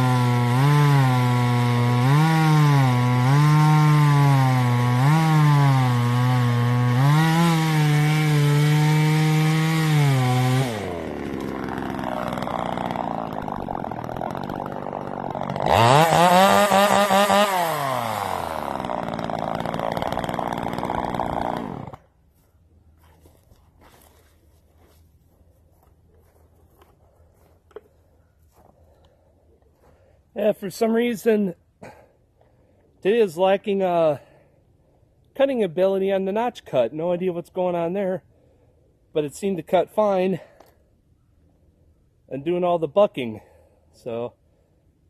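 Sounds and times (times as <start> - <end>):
chainsaw cutting wood: 0.0 - 22.2.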